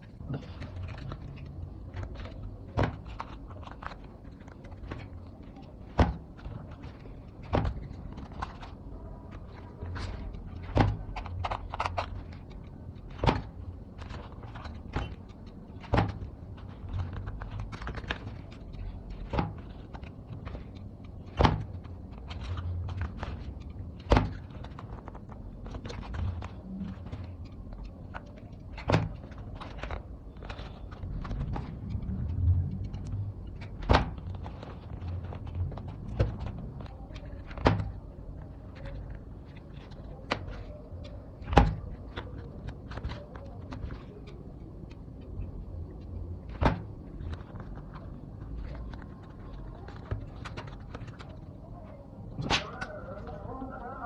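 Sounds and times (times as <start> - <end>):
low rumble: 31.0 - 37.1.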